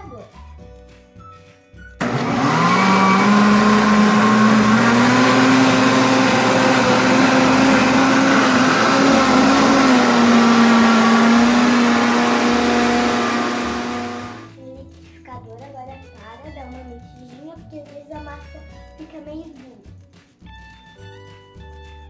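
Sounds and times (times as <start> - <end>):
blender motor running: 2.0 - 14.5.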